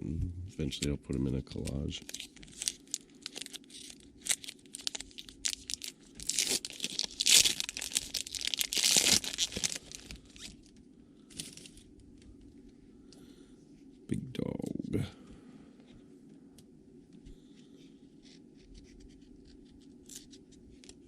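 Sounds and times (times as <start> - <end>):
faint low hum: 0.0 - 21.0
wrapper tearing and crinkling: 1.5 - 10.7.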